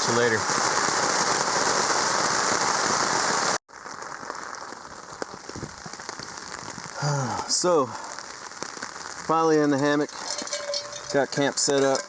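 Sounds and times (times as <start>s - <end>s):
heavy rain on a tarp: 0.0s - 12.0s
faint drips: 9.5s - 12.0s.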